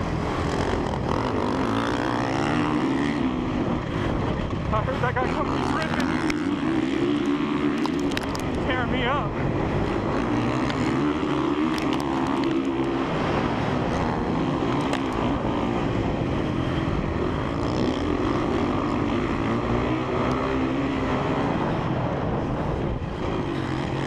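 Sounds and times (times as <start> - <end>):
motorcycle engine revving: 0.0 - 24.0
sharp clicks: 7.2 - 8.6.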